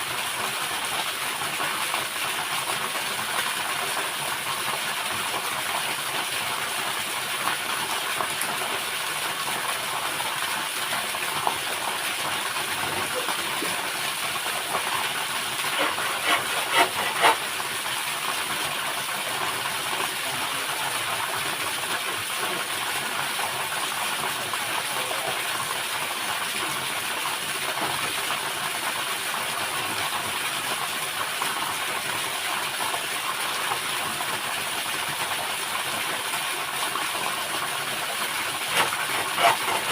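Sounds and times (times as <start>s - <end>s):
waterfall rushing: 11.8s - 17.8s, 38.3s - 39.9s.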